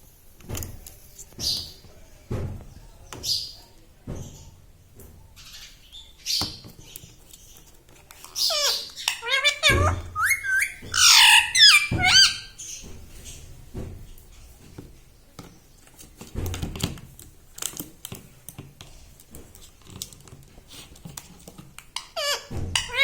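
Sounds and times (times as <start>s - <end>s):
parrot calling: 8.4s - 12.6s, 22.0s - 23.0s.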